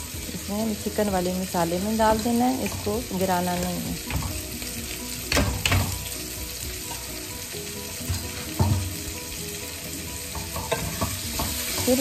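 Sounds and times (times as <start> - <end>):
food sizzling in a pan: 0.0 - 12.0
metal clanks against a pan: 2.6 - 4.5, 5.3 - 6.1, 8.0 - 9.0, 10.3 - 12.0.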